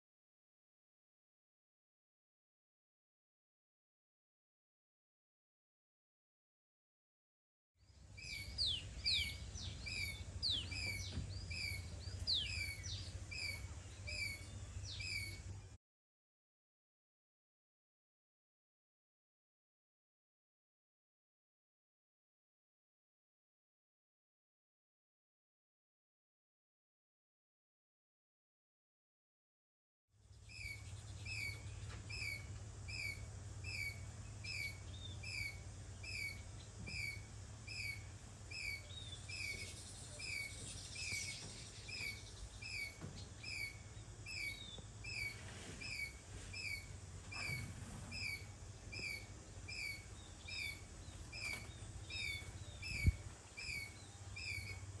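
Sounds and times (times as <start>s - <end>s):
low background hum: 7.9s - 15.8s, 30.2s - 55.0s.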